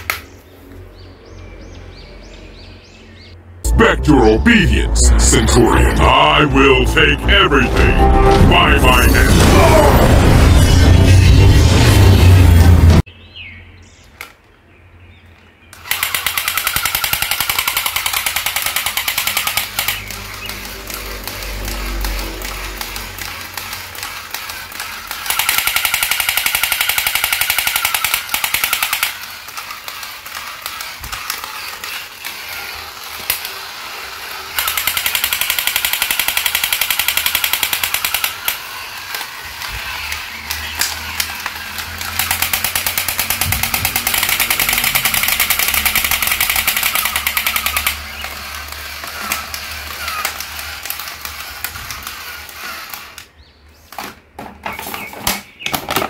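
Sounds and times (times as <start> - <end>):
toy machine-gun sound effect: 3.8 - 10.9, 15.8 - 53.3.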